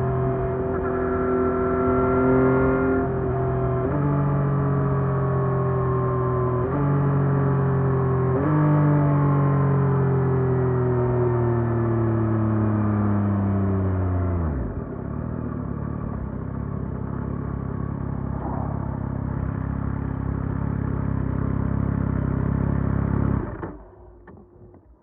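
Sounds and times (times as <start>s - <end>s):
motorcycle engine idling: 15.0s - 24.0s.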